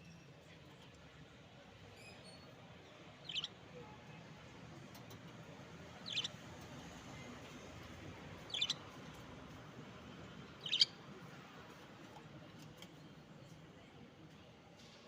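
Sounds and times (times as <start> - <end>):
budgerigars chirping: 6.0 - 6.4, 8.5 - 8.8, 10.6 - 10.9.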